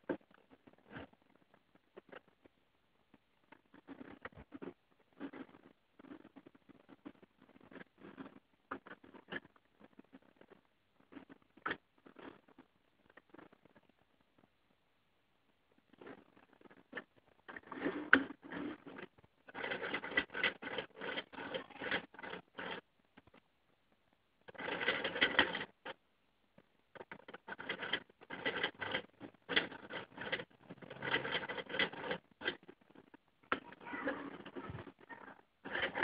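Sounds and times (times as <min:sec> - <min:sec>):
plastic engine model clattering: 0:15.9 - 0:23.4, 0:24.5 - 0:26.0, 0:27.0 - 0:36.0.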